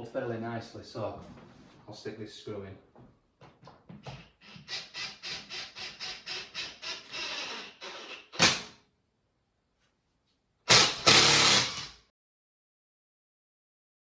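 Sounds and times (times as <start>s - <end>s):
loud rasping burst: 10.7s - 12.0s.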